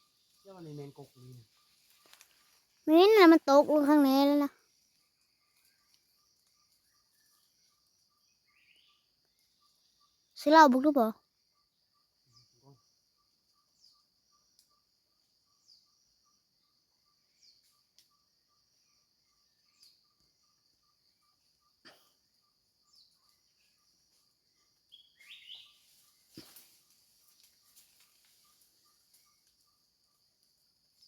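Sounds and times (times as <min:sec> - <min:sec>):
pulsing insect chirp: 0:00.0 - 0:10.5, 0:11.1 - 0:31.0
short falling bird calls: 0:24.9 - 0:27.0.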